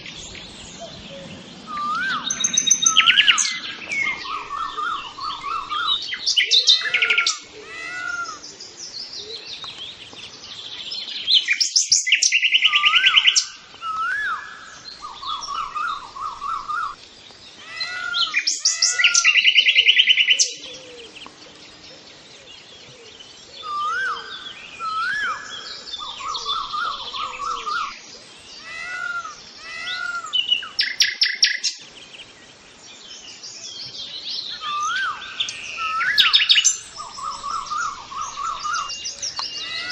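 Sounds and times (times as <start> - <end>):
fast high bird trills: 0.0 - 8.4.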